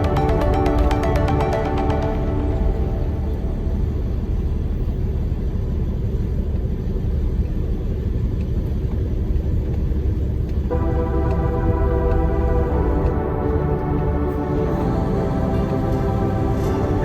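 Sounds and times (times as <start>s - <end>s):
large truck driving: 0.0s - 8.2s.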